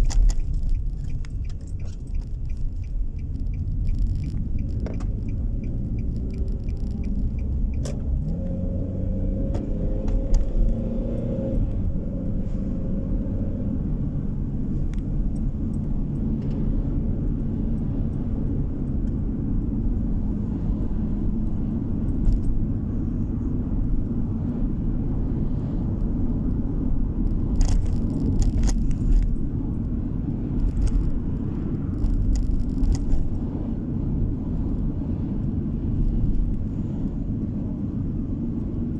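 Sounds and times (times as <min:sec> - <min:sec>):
short clicks or rattles: 0:00.0 - 0:08.4, 0:27.3 - 0:29.8, 0:30.6 - 0:33.4
car engine and tyre rumble: 0:00.0 - 0:38.9.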